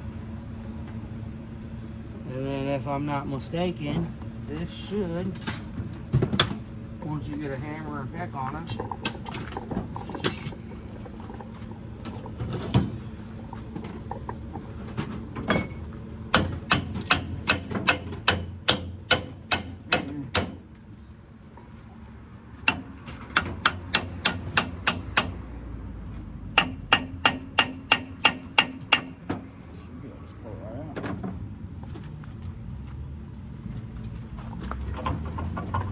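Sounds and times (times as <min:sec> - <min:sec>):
hammer striking metal: 0:15.5 - 0:20.6.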